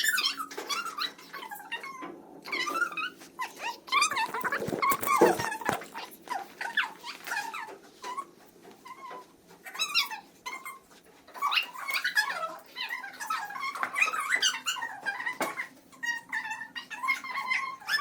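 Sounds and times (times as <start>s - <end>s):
dog whimpering and yipping: 2.5s - 8.3s, 8.9s - 15.4s, 16.1s - 18.0s.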